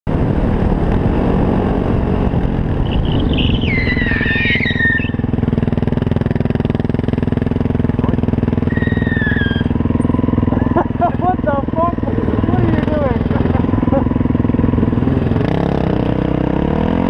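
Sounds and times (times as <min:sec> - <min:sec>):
wind noise: 0:00.1 - 0:05.6
motorcycle engine: 0:00.1 - 0:17.0
high squeal falling in pitch: 0:02.9 - 0:05.2, 0:08.7 - 0:09.8.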